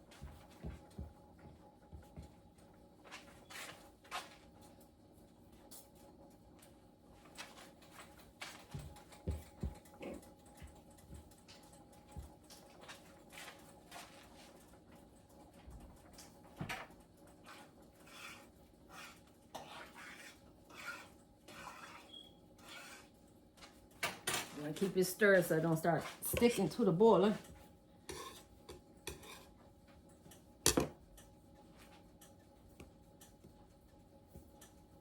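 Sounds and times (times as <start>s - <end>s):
dough clicks and knocks: 7.3s - 22.0s.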